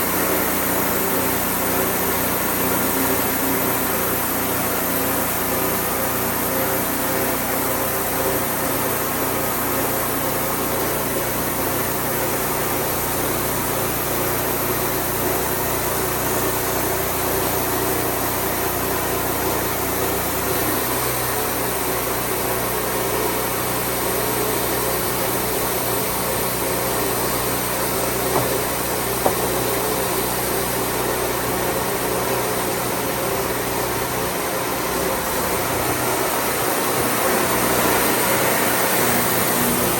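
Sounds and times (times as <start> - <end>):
sawmill engine running: 0.0 - 39.9
small knocks: 28.3 - 29.8.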